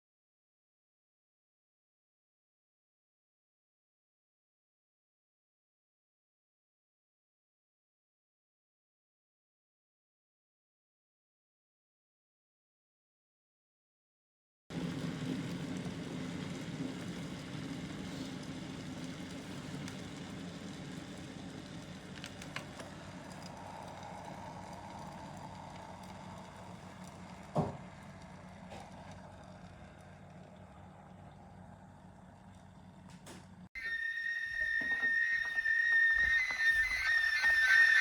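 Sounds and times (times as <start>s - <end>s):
kettle water boiling: 14.7s - 32.9s, 33.8s - 38.0s.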